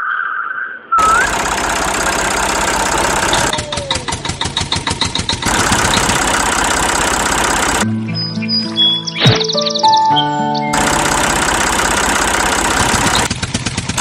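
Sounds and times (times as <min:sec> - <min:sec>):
engine chugging: 0:01.0 - 0:07.8, 0:10.7 - 0:14.0.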